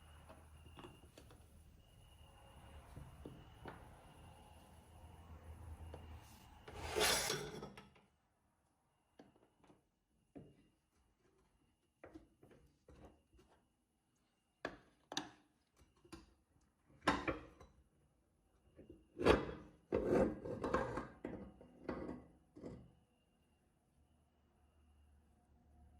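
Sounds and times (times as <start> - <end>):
objects scraping and rubbing: 6.2 - 7.6.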